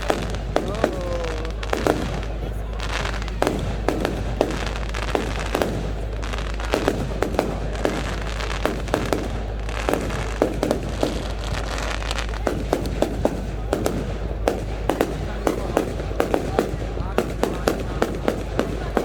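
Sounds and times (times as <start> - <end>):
fireworks bangs: 0.0 - 19.0
low rumble: 0.0 - 19.0.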